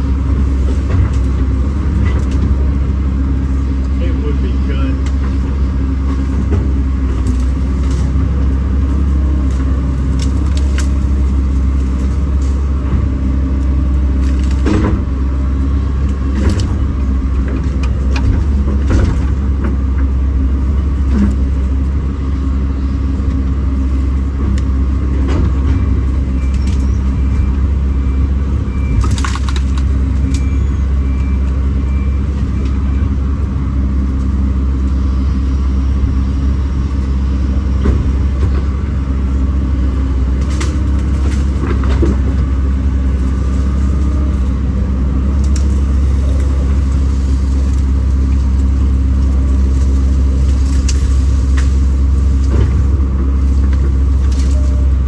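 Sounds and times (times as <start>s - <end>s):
excavator diesel engine running: 0.0s - 55.0s
sharp knocks and cracks: 28.9s - 30.5s.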